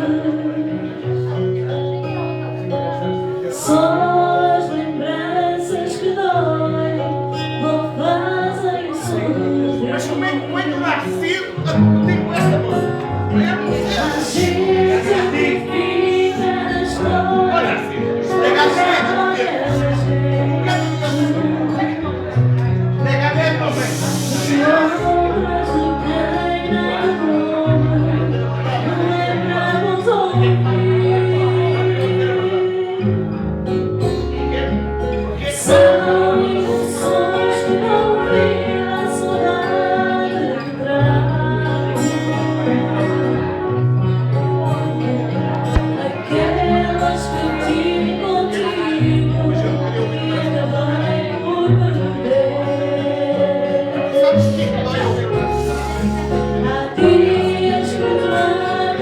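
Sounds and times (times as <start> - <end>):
woman singing: 0.0 - 1.1, 3.5 - 10.8, 13.8 - 22.1, 23.9 - 33.3, 35.6 - 43.5, 44.7 - 54.2, 55.7 - 59.0.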